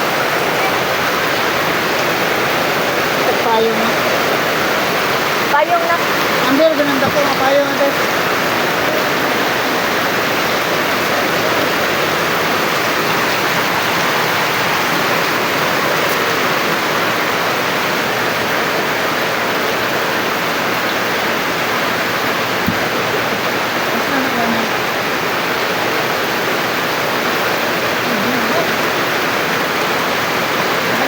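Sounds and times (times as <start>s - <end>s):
rushing water: 0.0s - 31.0s.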